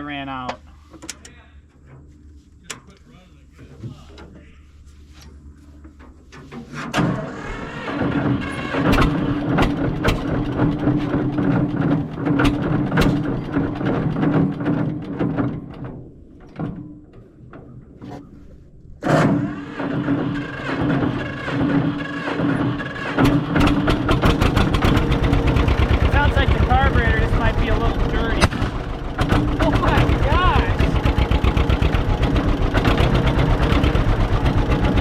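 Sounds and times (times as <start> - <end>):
tractor engine running unevenly: 6.7 - 17.8, 19.0 - 35.0.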